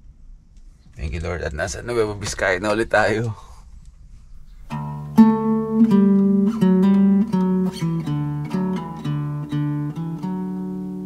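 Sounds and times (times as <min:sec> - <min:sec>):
acoustic guitar plucked notes: 0:04.7 - 0:11.0.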